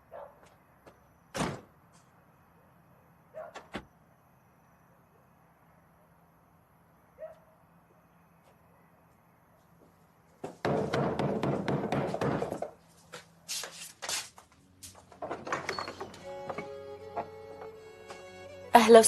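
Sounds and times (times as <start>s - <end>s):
sharp knocks: 10.4s - 12.8s.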